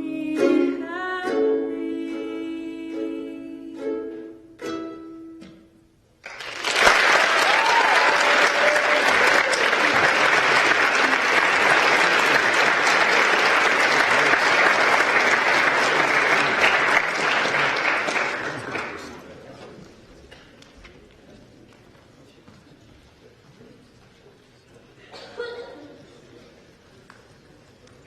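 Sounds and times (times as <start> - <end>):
music: 0.0 - 5.7
audience applauding: 6.2 - 19.6.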